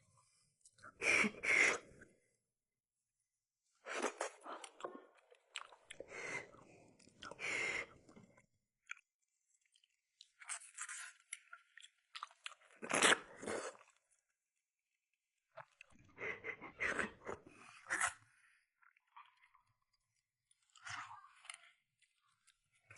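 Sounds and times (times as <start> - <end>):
chewing and mouth noise: 4.0 - 7.4.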